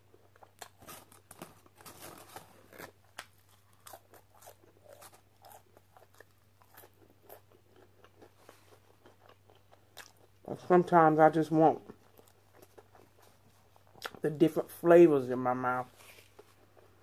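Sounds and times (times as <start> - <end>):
crunchy food chewing: 0.0 - 10.7, 11.4 - 14.3, 15.9 - 17.0.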